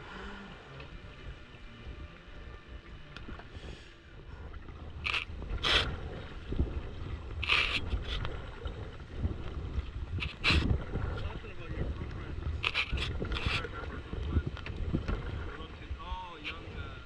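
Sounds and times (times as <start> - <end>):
low steady rumble: 0.0 - 17.0
paddle splashing water: 2.1 - 17.0.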